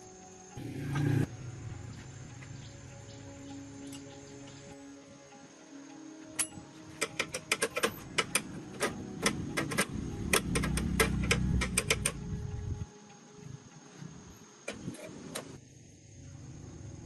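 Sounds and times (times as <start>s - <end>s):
sharp irregular clicks and knocks: 6.4s - 12.2s
low rumble: 9.5s - 12.8s.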